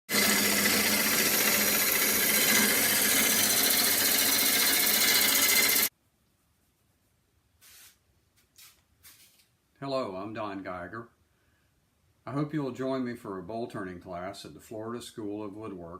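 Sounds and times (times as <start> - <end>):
wood lathe cutting wood: 0.1 - 5.9.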